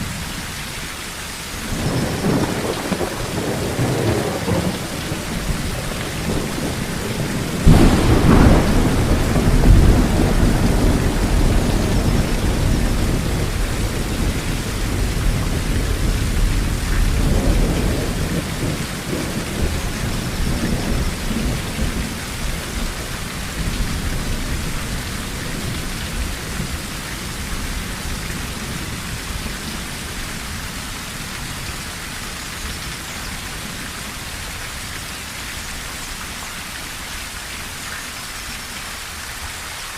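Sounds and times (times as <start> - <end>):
heavy rain on a tin roof: 0.0 - 39.9
thunder rumbling: 1.6 - 31.7.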